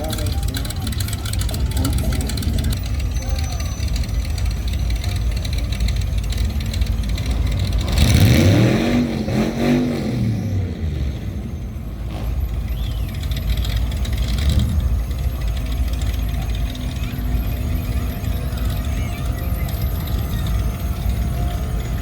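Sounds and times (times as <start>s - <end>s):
car engine revving: 0.0s - 22.0s
low engine rumble: 0.0s - 22.0s.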